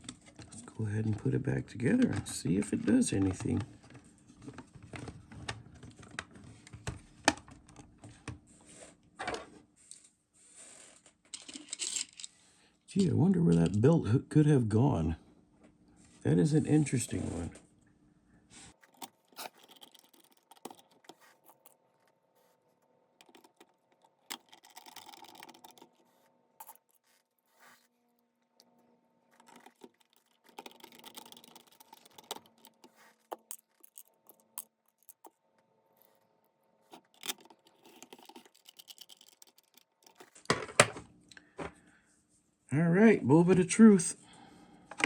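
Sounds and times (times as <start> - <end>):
plastic parts clicking and tapping: 11.3 - 12.3, 18.8 - 21.8, 23.2 - 27.8, 29.4 - 35.4, 36.9 - 41.0.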